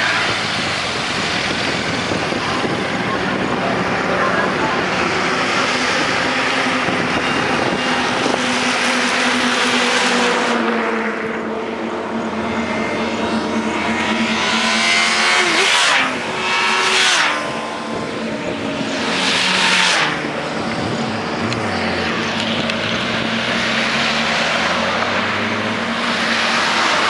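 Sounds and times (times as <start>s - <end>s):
motorcycles revving past at speed: 12.4s - 27.0s.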